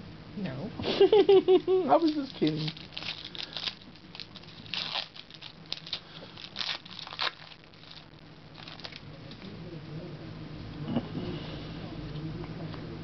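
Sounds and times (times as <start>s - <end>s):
trading cards rustling: 2.0s - 9.1s.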